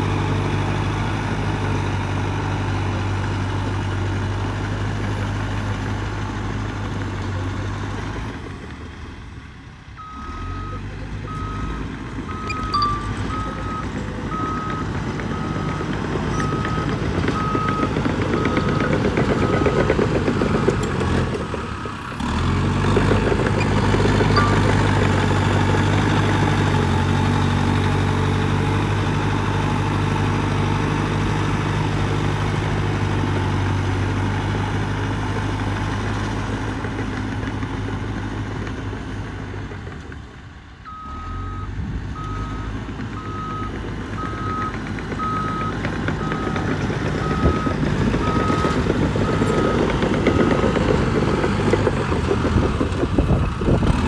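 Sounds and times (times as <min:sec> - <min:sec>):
bulldozer diesel engine running: 0:00.0 - 0:54.0
reversing alarm beeping: 0:10.0 - 0:19.9, 0:24.4 - 0:25.9.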